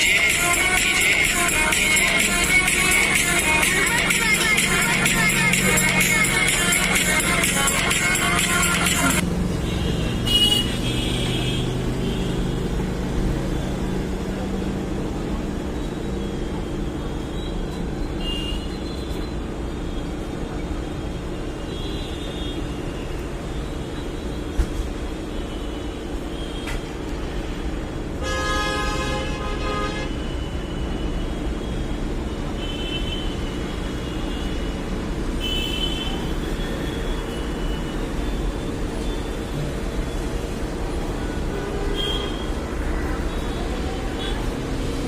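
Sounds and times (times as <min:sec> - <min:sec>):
vehicle horn: 0:07.2 - 0:12.3, 0:28.2 - 0:30.3, 0:41.5 - 0:42.5.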